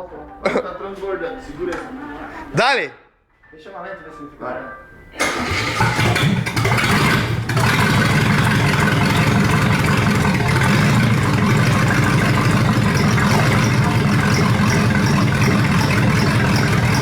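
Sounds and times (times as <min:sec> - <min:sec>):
car engine idling: 0:05.2 - 0:17.0.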